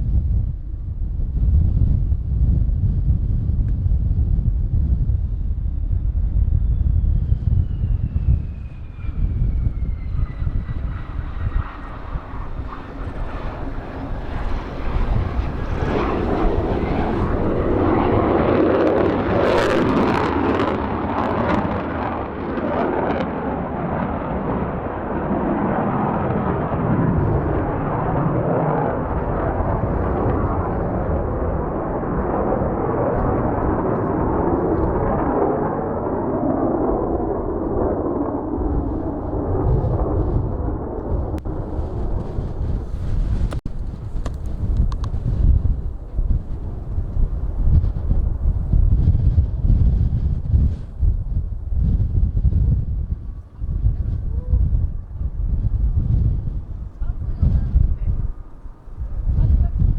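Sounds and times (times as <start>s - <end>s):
wind rumble on microphone: 0.0s - 59.9s
jet engine roar: 5.2s - 59.9s
sharp crackles: 41.4s - 48.8s.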